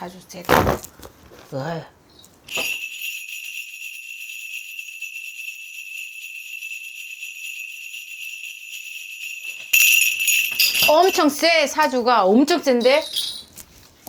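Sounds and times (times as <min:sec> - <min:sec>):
bells shaken jingling: 0:02.5 - 0:13.6.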